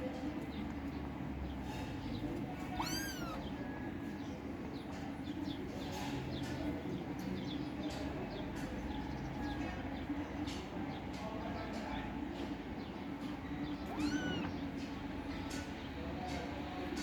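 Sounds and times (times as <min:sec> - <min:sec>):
kittens meowing: 0:02.6 - 0:03.6, 0:13.7 - 0:14.8.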